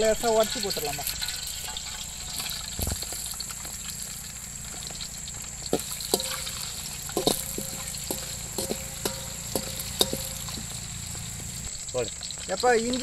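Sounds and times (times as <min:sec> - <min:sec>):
spices sizzling in hot oil: 0:00.0 - 0:13.0
metal ladle clinking against pan: 0:05.7 - 0:11.6.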